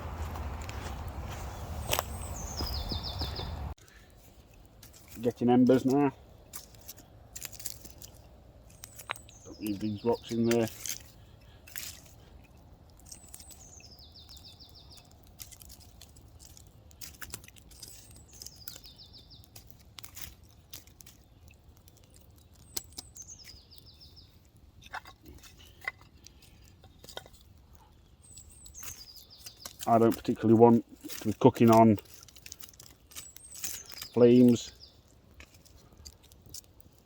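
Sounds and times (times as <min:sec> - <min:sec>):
wood fire crackling: 0:00.0 - 0:37.0
songbird trilling: 0:01.8 - 0:03.6, 0:08.7 - 0:11.1, 0:28.2 - 0:30.2.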